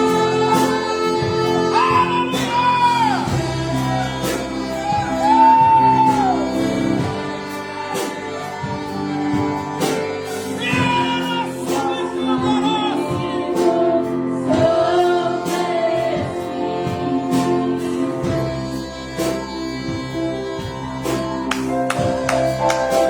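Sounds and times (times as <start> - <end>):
orchestra playing: 0.0 - 23.0
voices singing gospel song: 0.0 - 23.0
percussive beat: 21.3 - 23.0.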